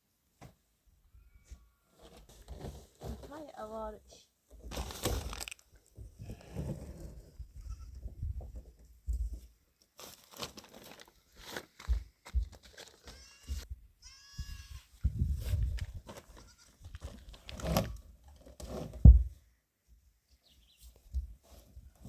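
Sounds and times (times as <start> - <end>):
goats bleating: 13.0 - 14.8.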